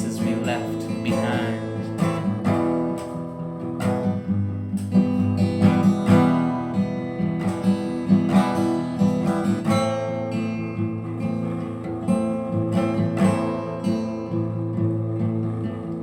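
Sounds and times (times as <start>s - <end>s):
person singing: 0.0s - 2.5s
acoustic guitar strumming: 0.0s - 16.0s.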